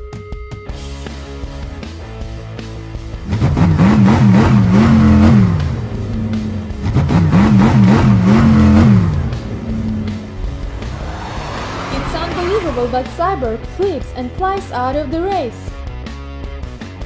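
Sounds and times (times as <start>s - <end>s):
rock music: 0.0s - 3.9s, 5.2s - 17.0s
cartoon truck engine revving: 3.2s - 14.4s.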